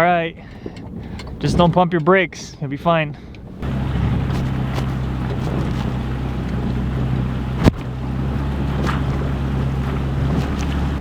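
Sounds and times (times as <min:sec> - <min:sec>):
wind and road noise: 0:00.2 - 0:11.0
vehicle running hum: 0:03.6 - 0:11.0.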